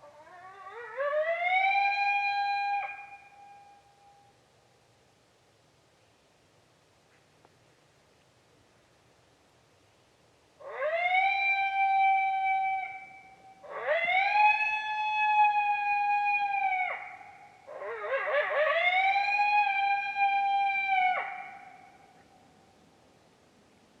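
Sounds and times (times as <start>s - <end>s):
coyote howls from predator call: 0.0s - 4.2s, 10.6s - 22.3s.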